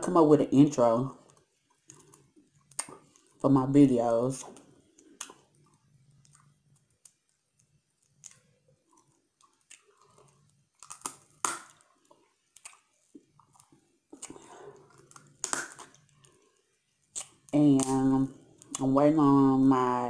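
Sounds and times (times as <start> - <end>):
chewing shellfish: 1.2 - 3.4, 4.4 - 17.6
shell cracking: 4.5 - 16.4.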